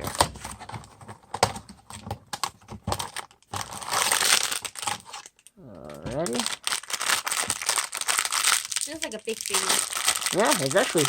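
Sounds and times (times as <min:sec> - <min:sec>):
cardboard packaging clicks and taps: 0:00.0 - 0:03.8
packaging crinkling rustle: 0:00.0 - 0:11.0.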